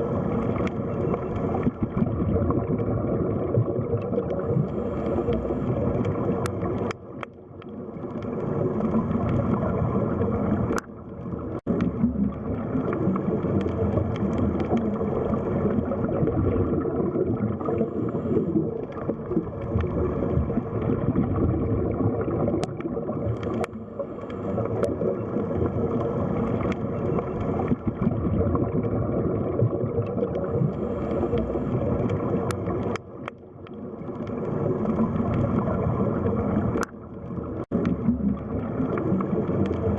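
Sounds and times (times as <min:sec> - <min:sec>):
underwater rushing and gurgling: 0:00.0 - 0:39.9
faint clicks: 0:00.2 - 0:02.1, 0:04.0 - 0:09.9, 0:10.5 - 0:15.9, 0:22.5 - 0:27.9, 0:30.0 - 0:35.7, 0:36.4 - 0:39.9.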